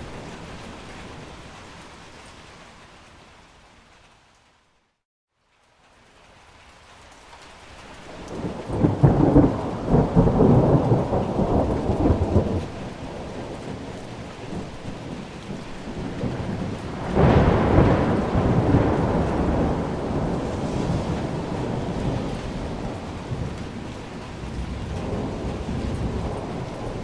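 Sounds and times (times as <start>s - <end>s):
steady rain: 0.0s - 27.0s
thunder rolling: 8.3s - 27.0s.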